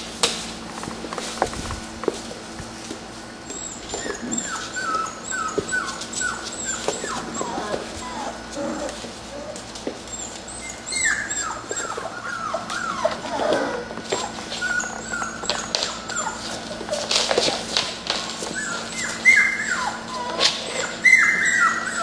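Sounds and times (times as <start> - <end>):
puppies whimpering: 3.4 - 22.0.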